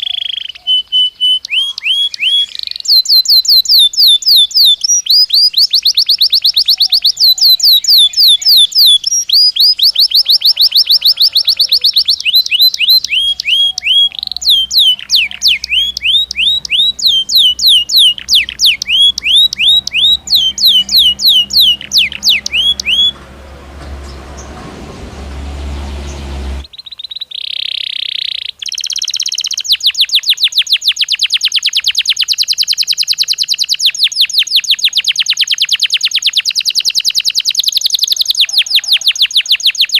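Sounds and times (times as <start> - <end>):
canary singing: 0.0 - 39.9
hiss and low hum: 20.2 - 26.6.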